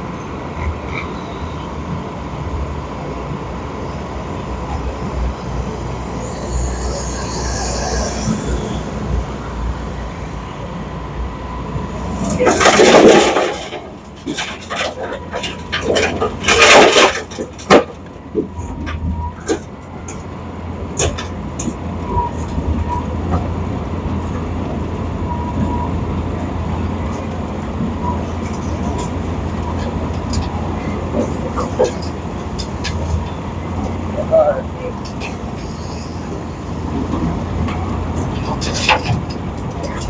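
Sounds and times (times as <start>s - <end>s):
diesel machinery rumbling: 0.0s - 40.0s
knocks and clanks: 12.2s - 20.2s, 37.0s - 40.0s.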